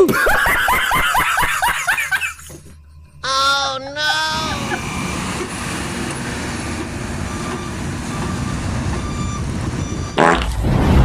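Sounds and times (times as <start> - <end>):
heavy traffic engine rumble: 1.3 - 11.0
horn-like blast: 10.2 - 11.0.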